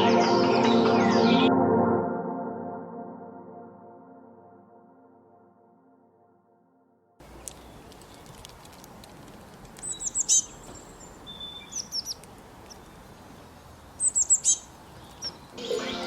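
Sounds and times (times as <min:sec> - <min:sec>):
faint steady hiss: 0:07.2 - 0:16.0
songbird chirping: 0:07.2 - 0:16.0.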